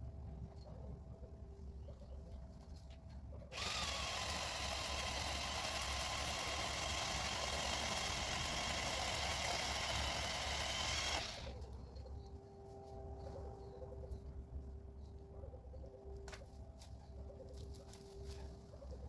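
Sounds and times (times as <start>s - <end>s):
powered pole saw running: 3.5s - 11.6s.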